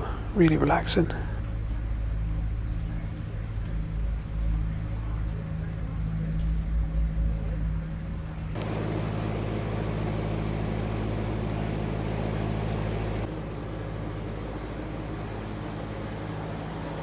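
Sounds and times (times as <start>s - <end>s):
boat diesel engine humming: 8.6s - 17.0s.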